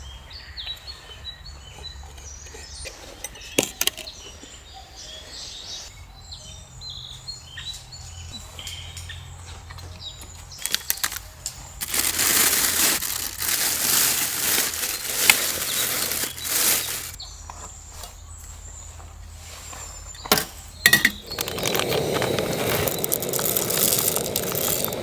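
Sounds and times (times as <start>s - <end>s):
fabric or plastic rustling: 10.6s - 17.2s, 21.4s - 25.0s.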